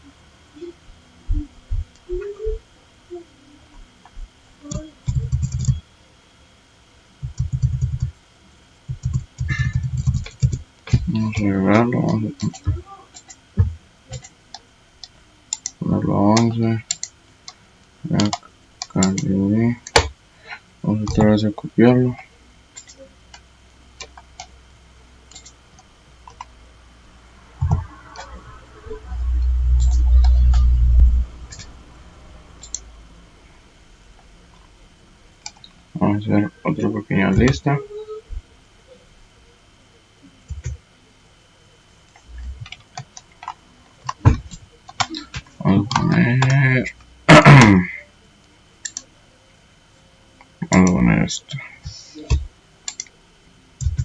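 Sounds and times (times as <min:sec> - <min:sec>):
computer mouse clicks: 0:04.7 - 0:05.8, 0:12.1 - 0:13.4, 0:14.1 - 0:15.8, 0:16.4 - 0:17.6, 0:18.2 - 0:19.3, 0:22.8 - 0:23.4, 0:24.0 - 0:24.5, 0:25.3 - 0:26.5, 0:27.6 - 0:28.4, 0:29.4 - 0:30.8, 0:31.5 - 0:31.8, 0:32.6 - 0:32.8, 0:48.8 - 0:49.1, 0:52.2 - 0:53.1
typing on computer keyboard: 0:04.7 - 0:05.8, 0:07.2 - 0:08.2, 0:08.9 - 0:11.5, 0:12.1 - 0:13.4, 0:14.1 - 0:14.6, 0:15.5 - 0:15.8, 0:16.4 - 0:17.1, 0:22.8 - 0:23.4, 0:25.3 - 0:25.6, 0:52.3 - 0:53.1, 0:53.8 - 0:54.0
loud low rumble: 0:28.6 - 0:32.5.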